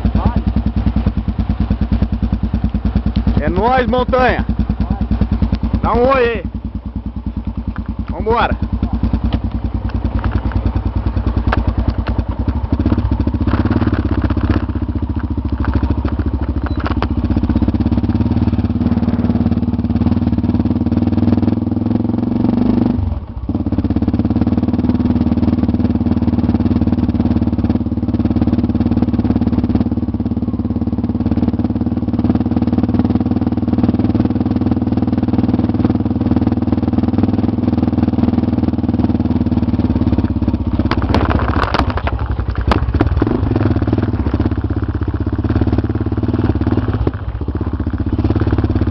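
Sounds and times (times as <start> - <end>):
motorcycle engine running: 0.0 - 48.9
clicks: 9.2 - 10.7.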